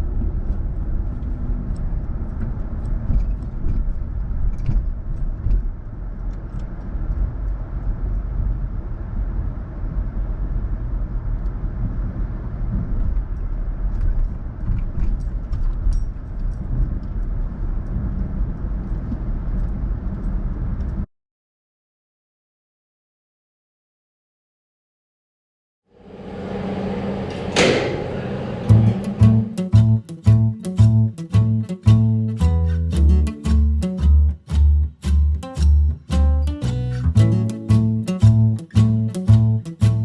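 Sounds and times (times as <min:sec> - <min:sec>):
vehicle engine rumble: 0:00.0 - 0:21.1, 0:26.0 - 0:40.0.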